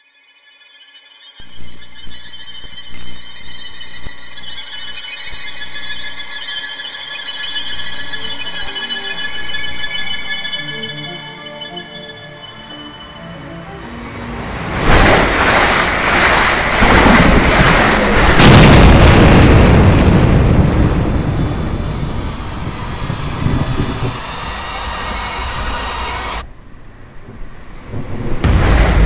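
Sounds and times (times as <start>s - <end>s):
deep rumbling with booms: 14.7s - 24.9s, 27.2s - 29.0s.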